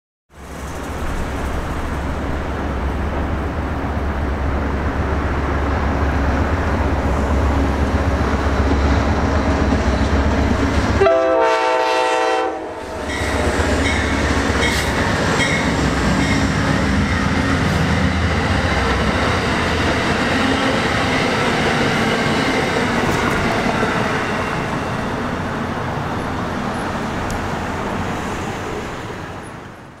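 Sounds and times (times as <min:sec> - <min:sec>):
locomotive engine drone: 0:00.4 - 0:11.8, 0:12.6 - 0:30.0
train horn blast: 0:11.0 - 0:14.2.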